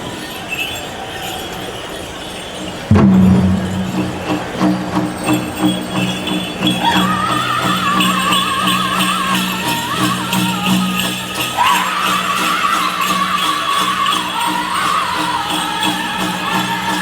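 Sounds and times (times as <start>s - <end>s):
jingling bells: 0.0s - 17.0s
steady drumbeat: 2.9s - 7.2s
high singing voice with vibrato: 6.8s - 17.0s.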